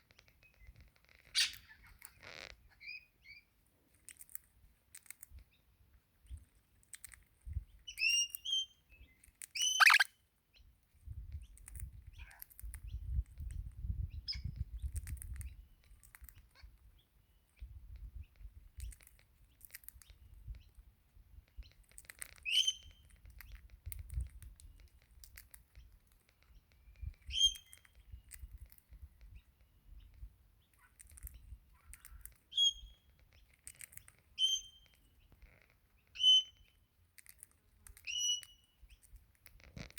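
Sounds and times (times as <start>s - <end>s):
parrot chirping: 9.6s - 10.1s.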